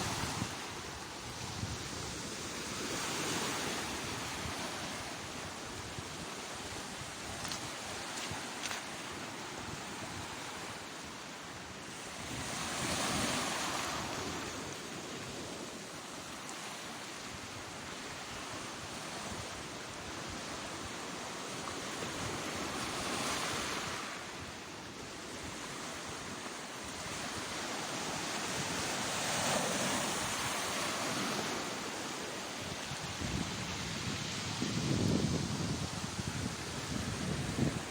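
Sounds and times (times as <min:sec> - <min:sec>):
wind on microphone: 0:00.0 - 0:10.8, 0:27.0 - 0:37.9
sea waves breaking on shore: 0:00.0 - 0:37.9.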